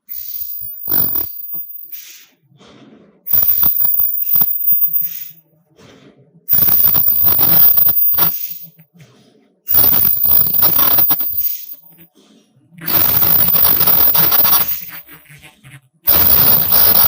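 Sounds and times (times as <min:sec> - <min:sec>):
high-pitched whine: 0:00.0 - 0:02.4, 0:03.3 - 0:05.5, 0:06.5 - 0:08.9, 0:09.7 - 0:12.1, 0:12.8 - 0:15.2, 0:16.1 - 0:17.0
welding machine clatter: 0:00.1 - 0:01.8, 0:03.3 - 0:05.4, 0:06.5 - 0:08.7, 0:09.7 - 0:12.0, 0:12.8 - 0:15.3, 0:16.1 - 0:17.0.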